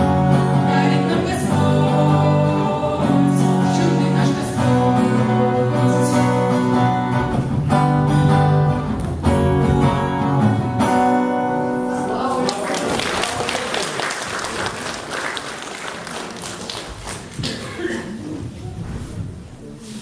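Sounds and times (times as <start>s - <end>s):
acoustic guitar strumming chords: 0.0s - 12.5s
person singing: 0.1s - 7.2s.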